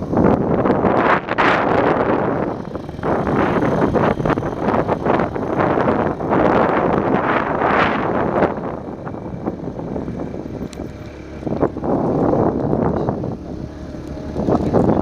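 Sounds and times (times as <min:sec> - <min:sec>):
vehicle engine running: 0:00.0 - 0:15.0
wind buffeting microphone: 0:00.0 - 0:15.0.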